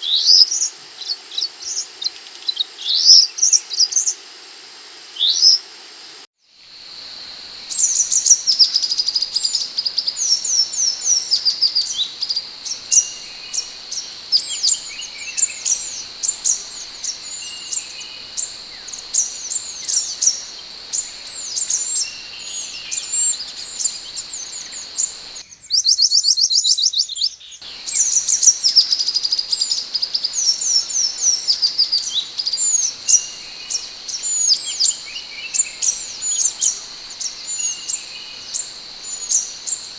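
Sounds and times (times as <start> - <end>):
bird high sweeping chirps: 7.6 - 25.4, 27.6 - 39.9
evenly repeated bird notes: 7.6 - 25.4, 27.6 - 39.9.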